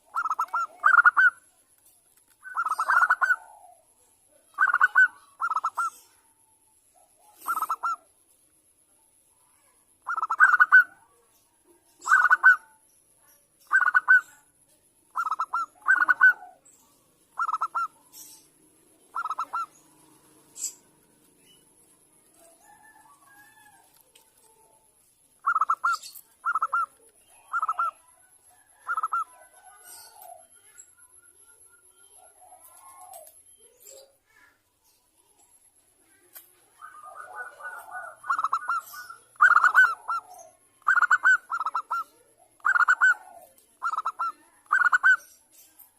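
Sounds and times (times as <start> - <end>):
dove cooing: 0.0 - 1.5, 2.4 - 6.3, 7.0 - 8.1, 10.0 - 11.2, 12.0 - 12.7, 13.7 - 14.4, 15.1 - 24.8, 25.4 - 30.8, 32.1 - 34.1, 36.7 - 45.3.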